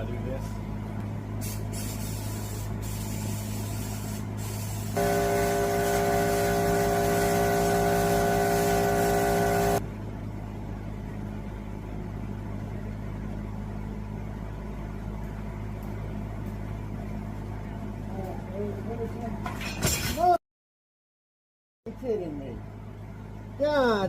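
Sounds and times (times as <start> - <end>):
loud air hiss: 1.4 - 9.8
steady buzzing drone: 4.8 - 9.9.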